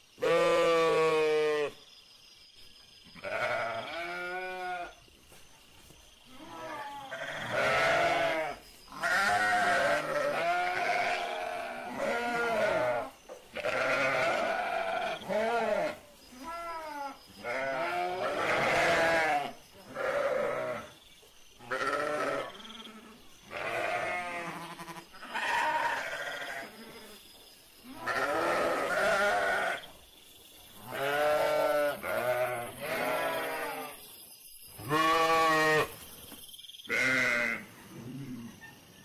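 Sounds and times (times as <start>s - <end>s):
sheep bleating: 0.2s - 1.7s, 3.2s - 4.9s, 6.4s - 20.9s, 21.7s - 26.8s, 27.9s - 29.8s, 30.9s - 33.9s, 34.8s - 35.9s, 36.9s - 37.6s.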